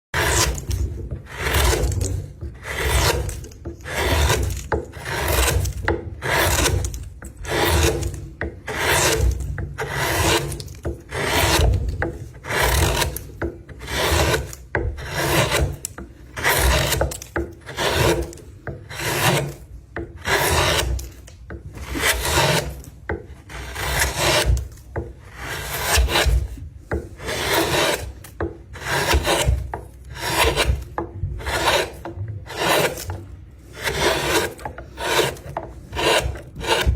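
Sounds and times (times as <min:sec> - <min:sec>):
abrasive scraping on wood: 0:00.2 - 0:36.9.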